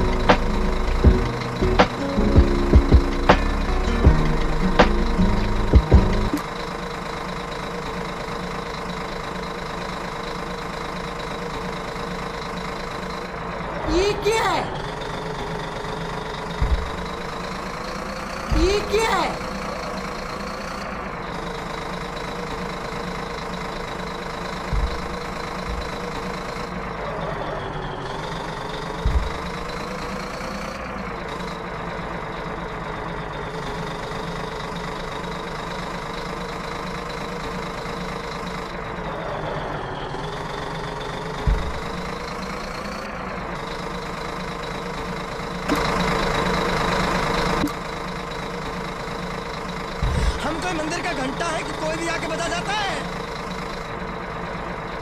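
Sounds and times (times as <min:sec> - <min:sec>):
tractor engine running: 0:00.0 - 0:55.0
short thumps: 0:16.6 - 0:17.3, 0:24.7 - 0:26.0, 0:29.0 - 0:29.6, 0:41.4 - 0:42.0, 0:50.0 - 0:50.5.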